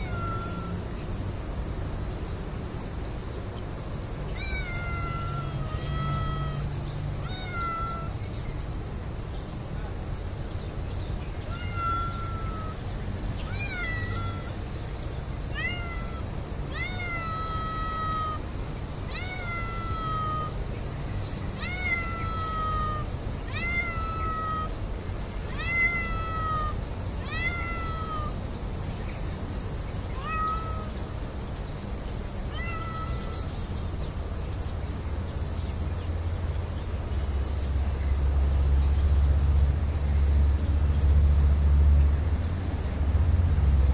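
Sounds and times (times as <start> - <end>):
cat meowing: 0.0 - 0.8, 4.3 - 8.3, 11.4 - 14.6, 15.5 - 20.6, 21.5 - 24.8, 25.4 - 28.4, 30.1 - 31.0, 32.4 - 33.6.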